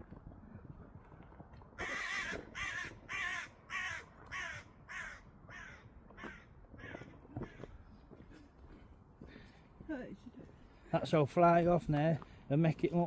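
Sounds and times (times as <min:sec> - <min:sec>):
crow cawing: 0:01.8 - 0:07.8.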